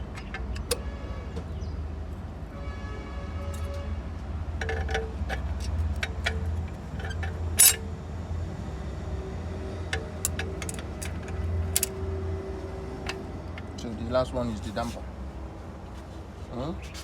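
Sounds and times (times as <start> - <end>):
metal parts clinking and knocking: 0.0 - 0.8, 4.6 - 7.9, 9.9 - 12.0.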